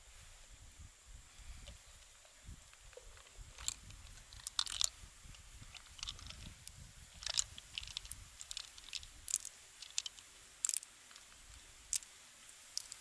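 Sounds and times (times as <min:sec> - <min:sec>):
mussel shells clicking and crunching: 0:03.5 - 0:13.0.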